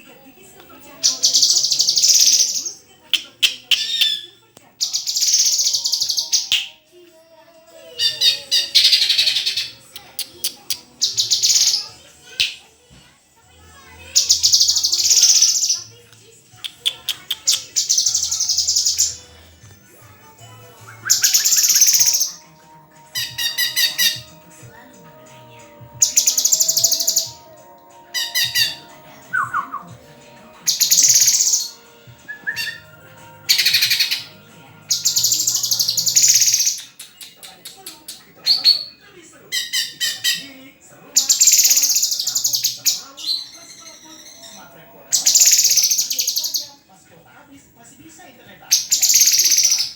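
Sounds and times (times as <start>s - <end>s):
songbird chattering song: 0.7s - 6.8s, 7.9s - 12.7s, 14.1s - 16.0s, 16.6s - 19.4s, 20.2s - 24.4s, 25.6s - 40.5s, 41.2s - 46.7s, 48.7s - 49.9s
bird singing high trills: 1.2s - 6.8s, 20.9s - 22.4s, 28.1s - 29.9s, 30.7s - 32.9s.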